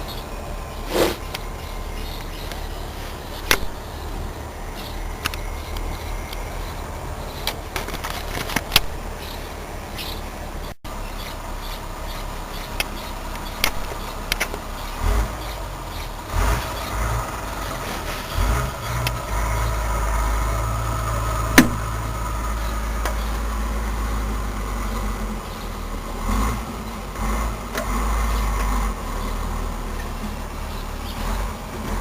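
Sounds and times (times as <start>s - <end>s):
sharp click: 12.8s - 14.6s.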